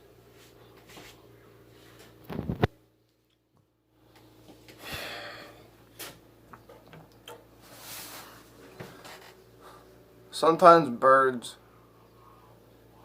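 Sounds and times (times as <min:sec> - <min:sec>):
person breathing out heavily: 0:04.8 - 0:05.7.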